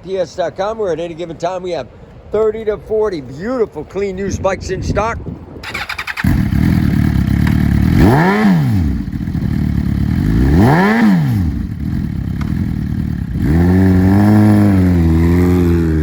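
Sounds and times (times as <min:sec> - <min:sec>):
motorcycle engine idling and revving: 0:05.6 - 0:16.0.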